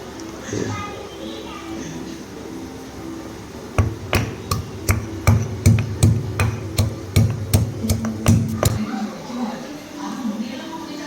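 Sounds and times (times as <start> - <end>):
chopping on kitchen surface: 3.8 - 8.8.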